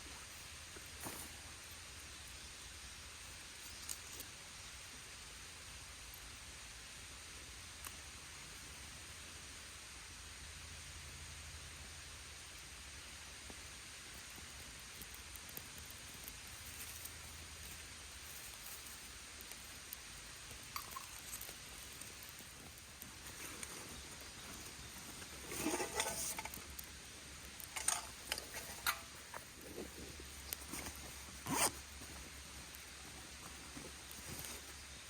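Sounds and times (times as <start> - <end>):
faint rustling and scratching: 0.0 - 2.4, 13.4 - 35.0
steady hiss: 0.0 - 35.0.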